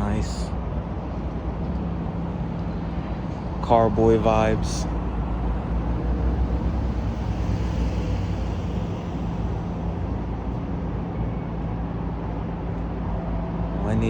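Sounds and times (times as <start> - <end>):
car engines idling: 3.0 - 11.1.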